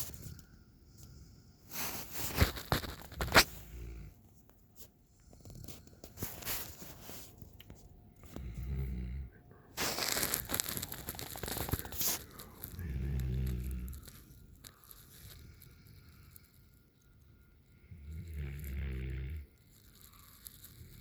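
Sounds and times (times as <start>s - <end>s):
puppy snoring: 1.2s - 4.3s, 5.2s - 6.8s, 8.2s - 16.8s, 17.8s - 19.6s.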